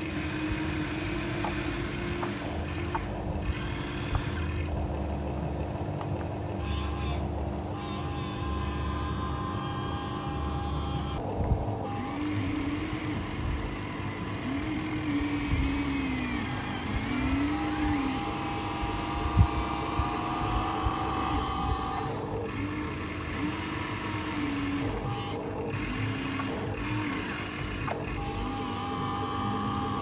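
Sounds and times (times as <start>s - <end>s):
electric motors whining: 0.0s - 30.0s
steady hum: 0.0s - 30.0s.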